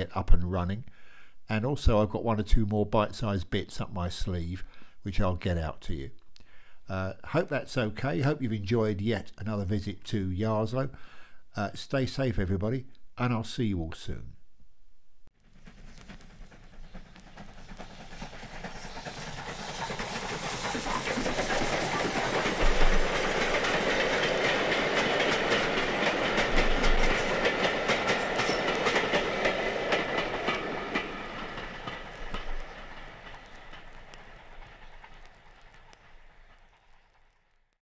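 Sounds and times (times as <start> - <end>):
train wheels clicking over rail joints: 15.4 - 37.5.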